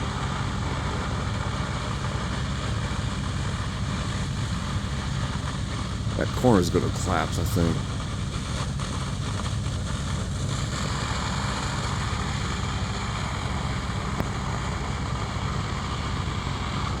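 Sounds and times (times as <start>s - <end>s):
diesel engine running at high revs: 0.0s - 17.0s
hose stream rushing hiss: 6.0s - 8.3s.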